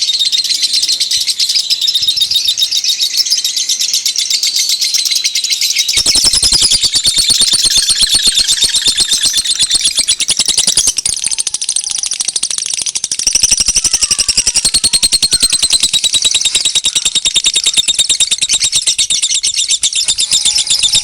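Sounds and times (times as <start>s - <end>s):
sharp high bird chirps: 0.0s - 21.0s
faint gliding whistles: 5.4s - 21.0s.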